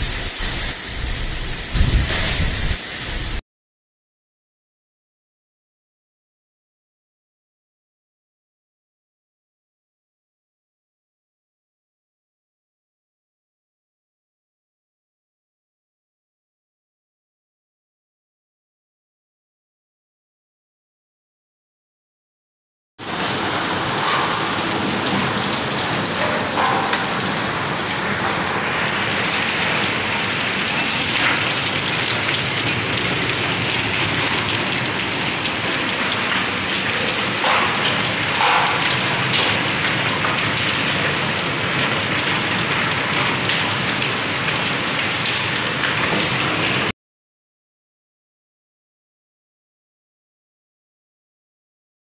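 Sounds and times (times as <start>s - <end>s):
heavy rain and hail: 0.0s - 3.4s, 23.0s - 46.9s.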